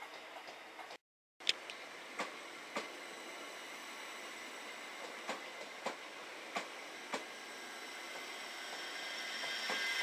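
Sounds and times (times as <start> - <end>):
rail noise with wheel clicks: 0.0 - 7.4, 8.1 - 10.0
train wheels clicking over rail joints: 5.0 - 7.4.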